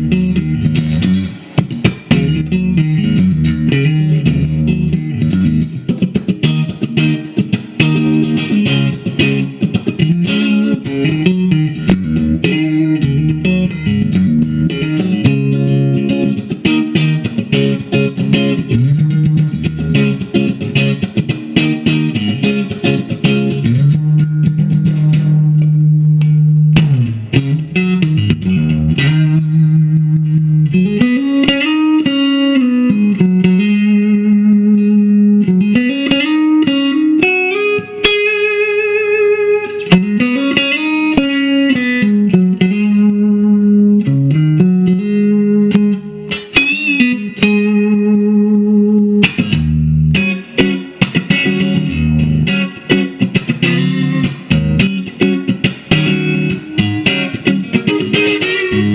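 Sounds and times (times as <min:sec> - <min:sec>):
electric guitar playing: 0:00.0 - 0:58.9.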